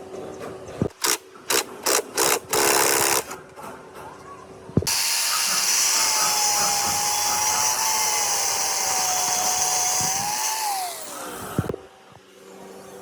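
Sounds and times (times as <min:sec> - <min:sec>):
electric power tool whining: 0:04.9 - 0:11.7.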